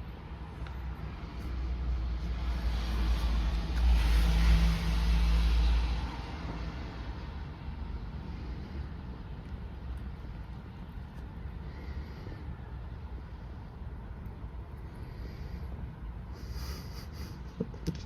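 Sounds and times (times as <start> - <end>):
vehicle driving past: 1.2 - 9.0.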